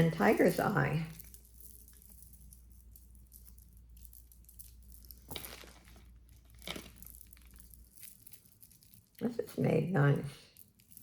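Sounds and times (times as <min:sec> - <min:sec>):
low steady hum: 0:00.0 - 0:11.0
packaging rustling and crinkling: 0:05.0 - 0:08.2.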